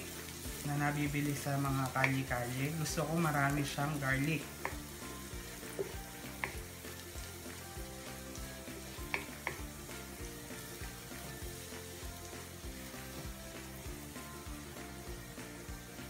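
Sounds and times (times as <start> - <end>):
background music: 0.0 - 16.0
garlic sizzling in oil: 0.0 - 16.0
spatula clicking against pan: 4.6 - 4.9, 5.7 - 6.7, 9.0 - 9.7.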